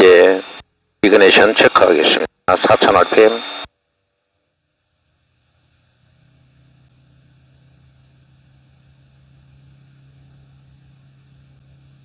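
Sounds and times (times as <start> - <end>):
light aircraft piston engine drone: 1.2 - 3.7.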